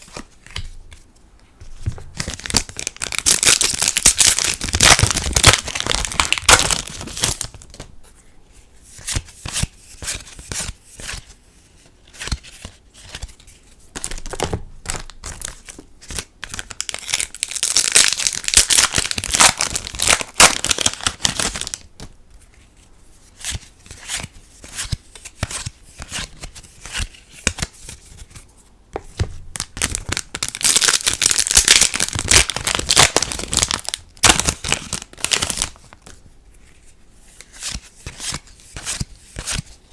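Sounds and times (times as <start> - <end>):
foil packs crinkling and tearing: 2.2 - 7.6, 16.6 - 21.8, 29.8 - 36.0.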